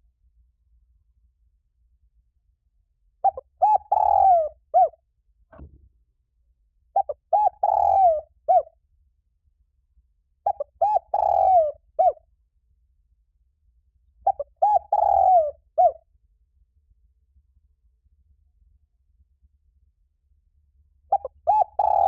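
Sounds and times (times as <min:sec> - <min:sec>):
dove cooing: 0:03.2 - 0:05.0, 0:07.0 - 0:08.7, 0:10.5 - 0:12.2, 0:14.3 - 0:16.0, 0:21.1 - 0:22.0.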